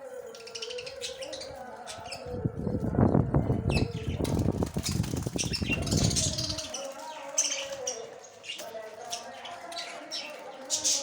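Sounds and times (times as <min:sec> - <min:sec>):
wings flapping: 0:03.7 - 0:08.0.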